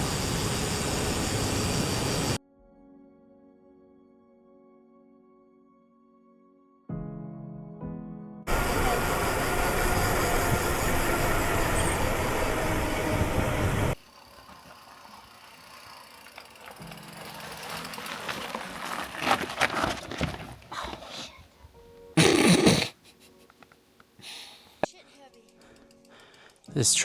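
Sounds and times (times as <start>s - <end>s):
bike tyre noise on trail: 0.0s - 2.4s, 8.5s - 21.6s
wind rush: 8.5s - 14.0s
crunching and scraping on loose rock: 16.4s - 21.4s.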